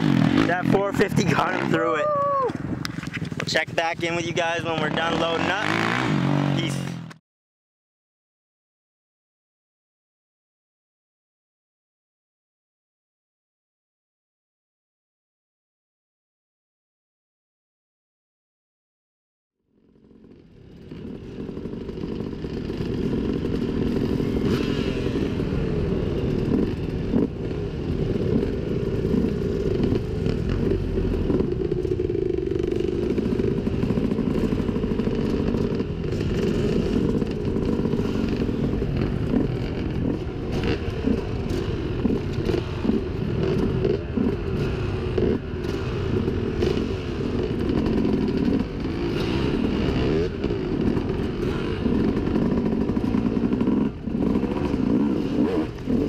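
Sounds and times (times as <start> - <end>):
muffled dirt bike engine: 0.0 - 7.2, 19.7 - 56.0.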